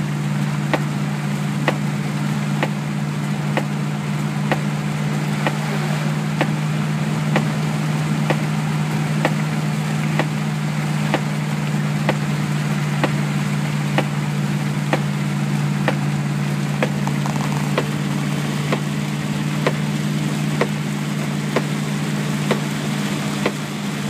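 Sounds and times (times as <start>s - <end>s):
car engine droning: 0.0s - 24.0s
rain noise: 0.0s - 24.0s
sharp ticking: 16.8s - 18.9s.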